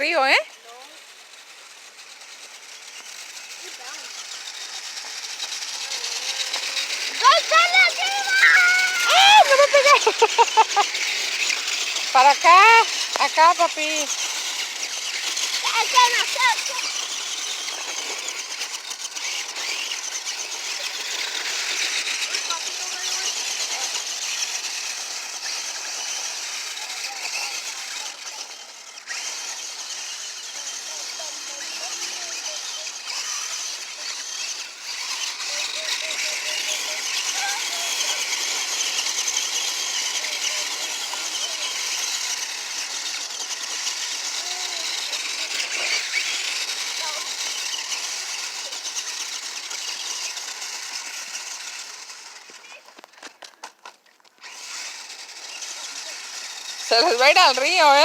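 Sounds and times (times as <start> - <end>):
electric motors whirring: 0.0 - 58.0
tyres on dirt: 0.0 - 58.0
faint voices: 3.5 - 10.8.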